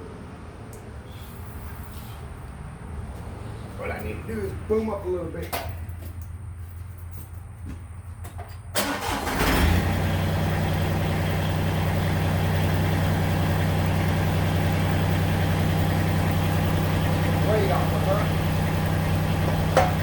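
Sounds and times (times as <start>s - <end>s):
diesel tractor engine starting and idling: 8.4s - 20.0s.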